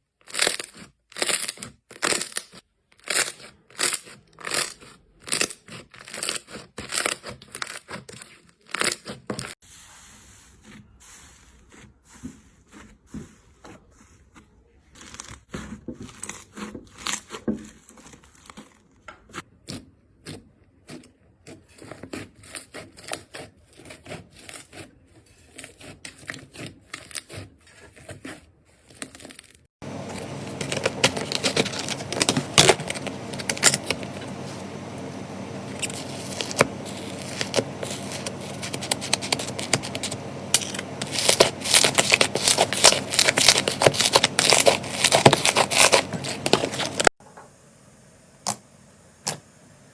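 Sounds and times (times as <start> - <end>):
slime crackling and popping: 0.3 - 7.8, 35.4 - 47.1.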